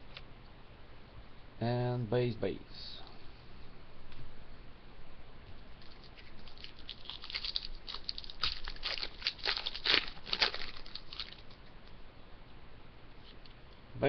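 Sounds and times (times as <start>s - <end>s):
foil wrapper crinkling and tearing: 5.8s - 11.6s.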